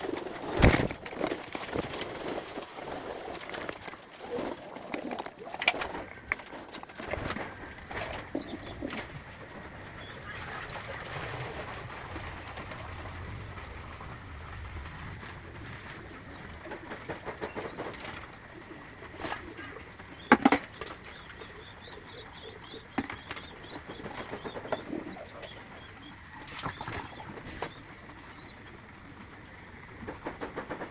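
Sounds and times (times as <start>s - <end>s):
beaks pecking at grain: 0.0s - 9.3s, 15.9s - 28.7s
pigeons cooing: 0.0s - 11.3s, 15.4s - 30.2s.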